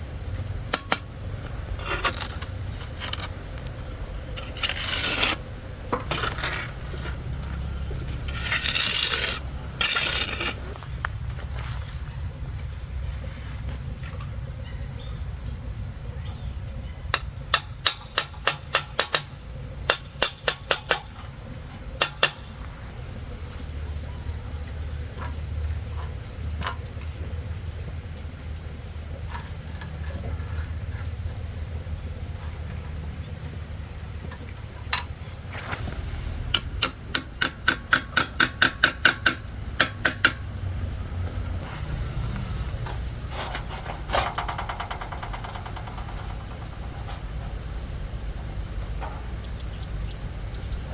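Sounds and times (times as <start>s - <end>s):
steady low rumble: 0.0s - 17.0s, 33.2s - 50.9s.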